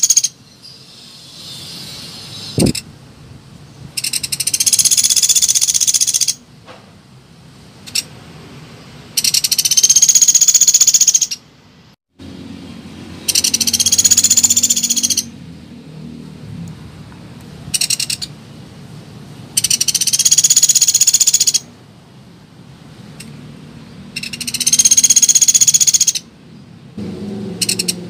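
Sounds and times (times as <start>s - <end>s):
woodpecker rattling trill: 0.0s - 0.4s, 4.0s - 6.4s, 9.2s - 11.4s, 13.2s - 15.3s, 17.8s - 18.3s, 19.6s - 21.7s, 24.1s - 26.3s, 27.6s - 28.0s.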